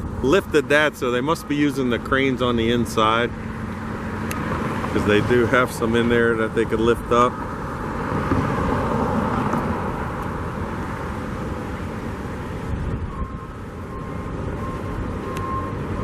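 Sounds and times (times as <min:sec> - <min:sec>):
construction site noise: 0:00.0 - 0:16.0
wind buffeting microphone: 0:01.2 - 0:16.0
faint high beep: 0:13.0 - 0:16.0.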